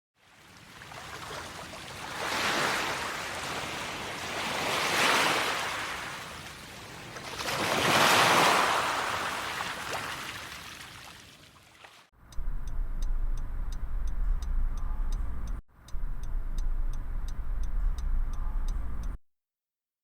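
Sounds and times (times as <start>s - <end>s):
waves breaking: 0.2s - 12.1s.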